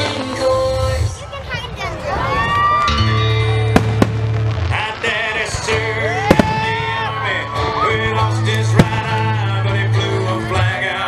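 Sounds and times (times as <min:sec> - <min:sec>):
fireworks bursting with bangs: 0:00.0 - 0:01.4, 0:03.6 - 0:07.2, 0:08.3 - 0:10.7
loud music: 0:03.0 - 0:11.0.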